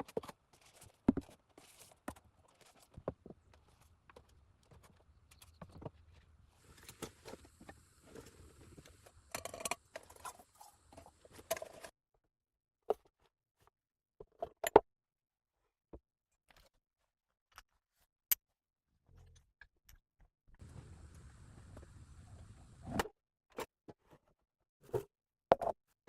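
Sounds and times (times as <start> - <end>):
objects knocking and clicking: 0.0 - 11.9
rustling and scraping: 0.0 - 11.9.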